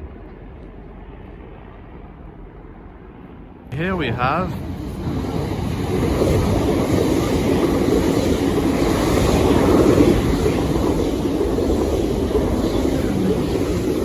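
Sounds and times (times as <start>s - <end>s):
trains rumbling on rails: 3.7s - 14.0s.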